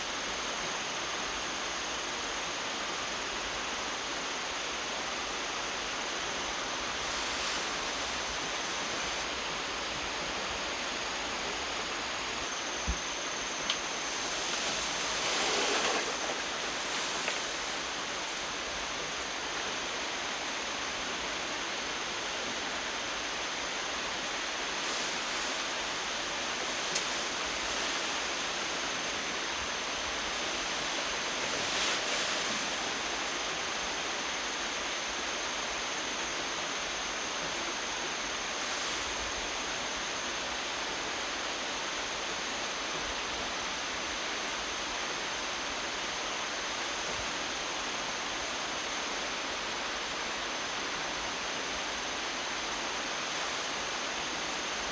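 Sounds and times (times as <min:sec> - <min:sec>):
outdoor hiss: 0:00.0 - 0:54.9
soft rustles: 0:14.0 - 0:18.5.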